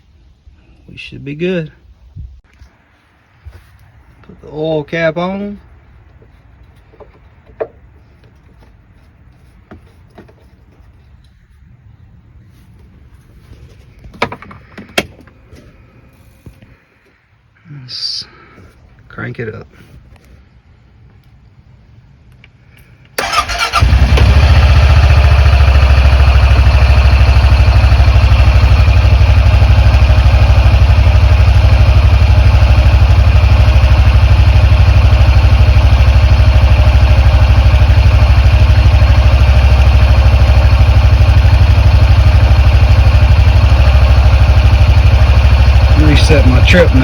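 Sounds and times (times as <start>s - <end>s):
engine cranking: 23.1s - 26.8s, 29.6s - 47.0s
engine idling loudly: 23.2s - 47.0s.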